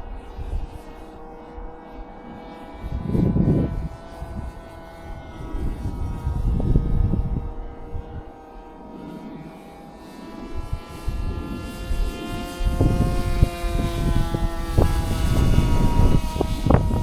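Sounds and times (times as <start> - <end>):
model plane motor whine: 0.0 - 17.0
wind buffeting microphone: 2.8 - 8.5, 10.5 - 17.0.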